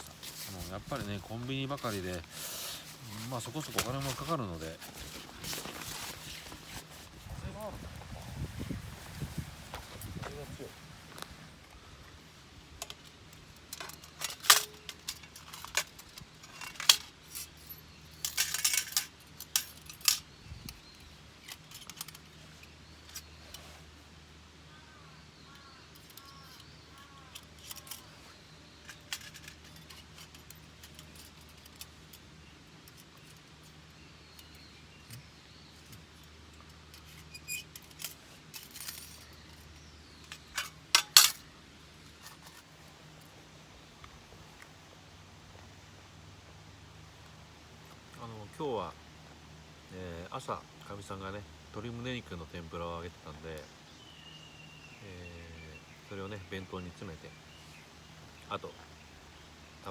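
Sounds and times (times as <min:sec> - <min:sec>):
camp gear clinking and knocking: 0:00.0 - 0:08.3, 0:12.7 - 0:23.8, 0:25.9 - 0:49.7.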